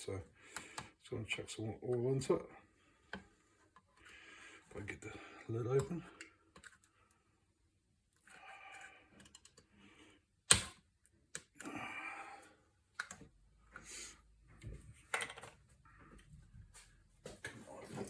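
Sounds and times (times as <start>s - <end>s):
hands handling parts clicking: 9.2s - 9.7s.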